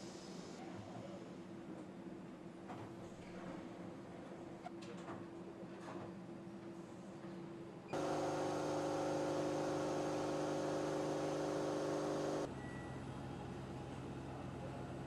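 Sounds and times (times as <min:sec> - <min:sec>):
factory machinery humming: 0:08.0 - 0:12.5.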